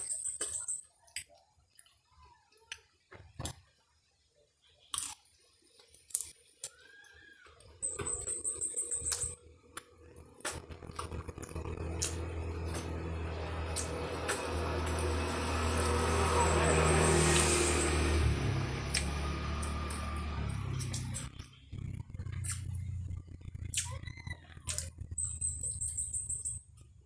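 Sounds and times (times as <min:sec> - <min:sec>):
crunching while chewing fried food: 0:04.8 - 0:07.7, 0:09.1 - 0:26.0
rapid high ticking: 0:07.8 - 0:26.9
motor vehicle engine: 0:07.8 - 0:27.0.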